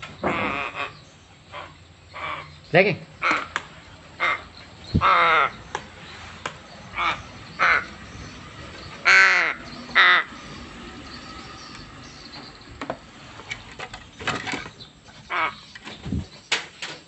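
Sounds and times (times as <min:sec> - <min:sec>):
crow cawing: 0:00.2 - 0:02.6, 0:03.2 - 0:05.8, 0:06.9 - 0:08.2, 0:09.0 - 0:10.6, 0:15.3 - 0:15.7.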